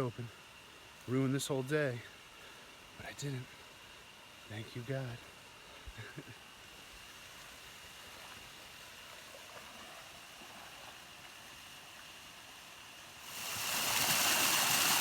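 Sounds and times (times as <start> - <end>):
waterfall and stream rushing: 6.7 - 15.0.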